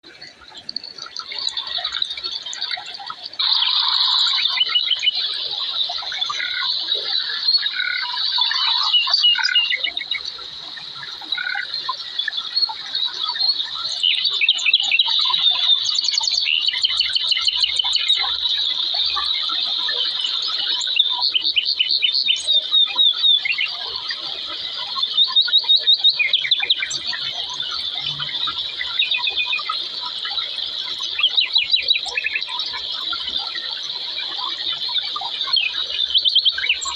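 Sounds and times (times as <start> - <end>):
birds chirping and trilling: 0.8 - 36.9.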